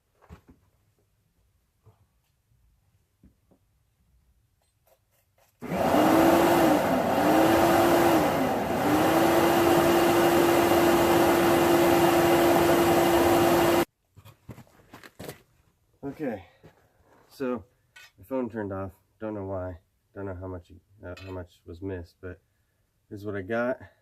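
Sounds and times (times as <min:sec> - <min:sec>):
electric air blower: 0:05.6 - 0:13.9.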